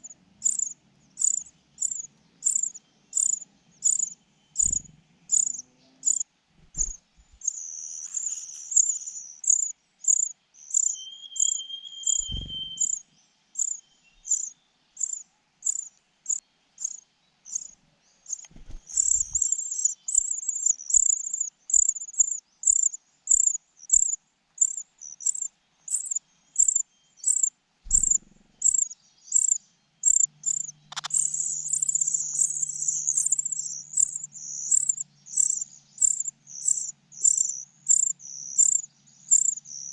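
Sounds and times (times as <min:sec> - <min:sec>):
cricket chirping: 0:00.0 - 0:06.2, 0:06.8 - 0:13.0, 0:13.6 - 0:39.9
dull low thumps: 0:04.6 - 0:05.0, 0:06.6 - 0:07.4, 0:12.2 - 0:12.9, 0:27.9 - 0:28.6.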